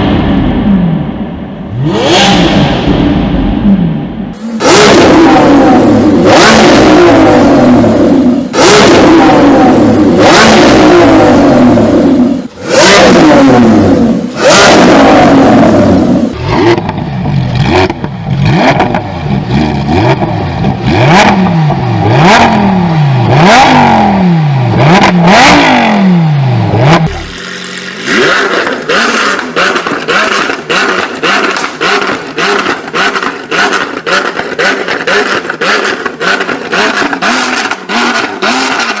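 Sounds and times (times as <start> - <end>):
supercar engine revving: 0.0 - 39.0
higher engine revving with pops: 1.6 - 39.0.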